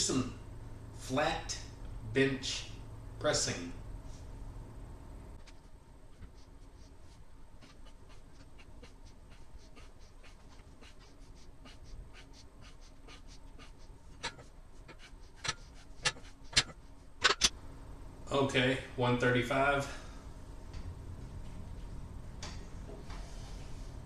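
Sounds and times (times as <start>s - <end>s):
rapid rhythmic panting: 0.0s - 18.2s
sharp clicks and knocks: 15.4s - 17.6s.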